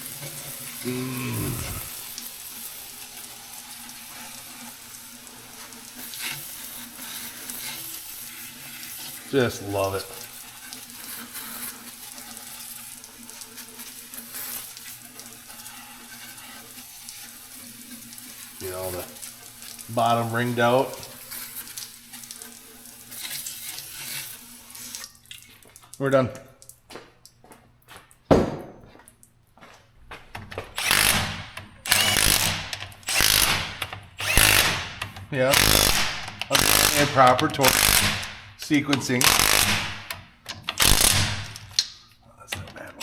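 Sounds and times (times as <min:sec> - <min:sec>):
power tool running bolt down: 0:30.7 - 0:38.5, 0:39.2 - 0:41.7.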